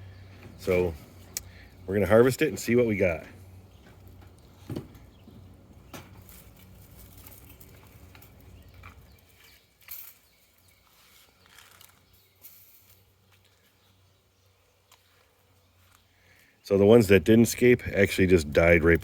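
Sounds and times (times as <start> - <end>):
faint rustling: 0.0 - 14.0
soft ticks and scrapes: 3.7 - 13.8.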